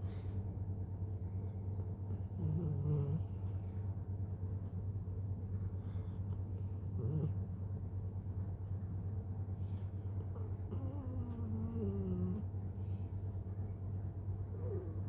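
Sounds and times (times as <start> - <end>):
steady low hum: 0.0 - 15.0
dog snoring: 2.1 - 3.6, 6.6 - 7.4, 10.3 - 12.5.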